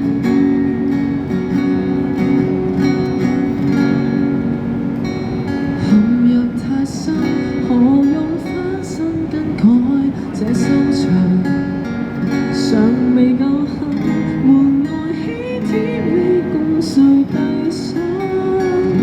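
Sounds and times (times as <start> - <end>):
strummed acoustic guitar: 0.0 - 19.0
person singing a pop ballad: 5.8 - 19.0.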